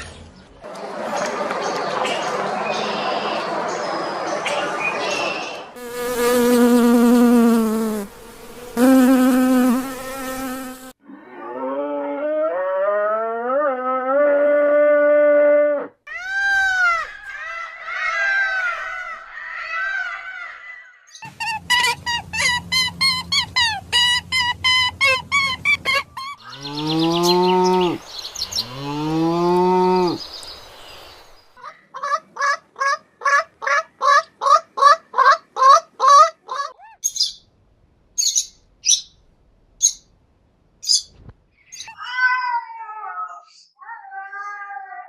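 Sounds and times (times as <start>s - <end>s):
repeated animal calls: 11.0s - 30.2s
cattle mooing: 26.5s - 28.0s, 28.6s - 30.2s
rapid bird chirping: 36.8s - 37.5s, 38.2s - 39.2s
sharp high bird chirps: 36.9s - 37.5s, 38.2s - 39.2s.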